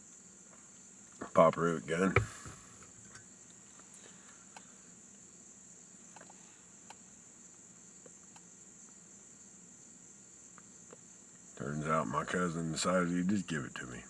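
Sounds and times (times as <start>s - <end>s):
faint ticks: 0.0s - 5.3s, 6.0s - 9.0s, 10.5s - 11.6s
crickets chirring: 0.0s - 14.0s.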